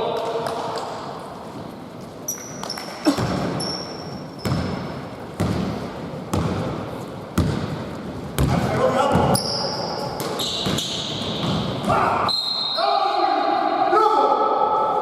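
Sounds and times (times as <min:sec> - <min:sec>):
sneaker squeaks on floor: 0:02.2 - 0:04.9, 0:09.1 - 0:11.7
basketball bouncing on court: 0:02.4 - 0:03.8, 0:04.4 - 0:11.9.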